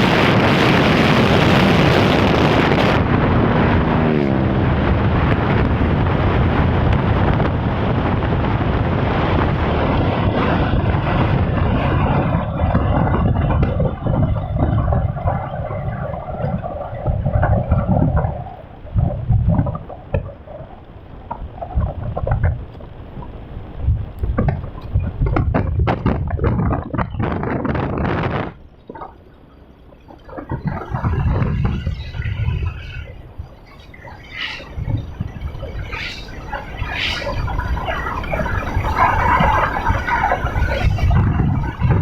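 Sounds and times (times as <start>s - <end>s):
wind buffeting microphone: 0.0s - 42.0s.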